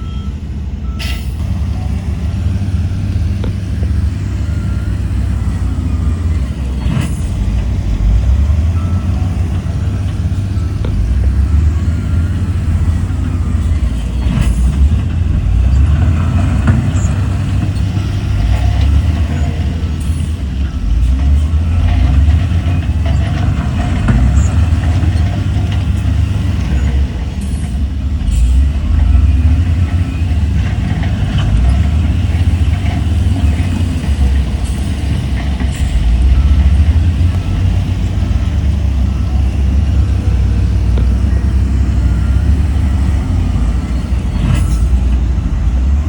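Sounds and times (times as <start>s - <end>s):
diesel machinery rumbling: 0.0s - 46.0s
sharp clanks: 13.0s - 39.3s.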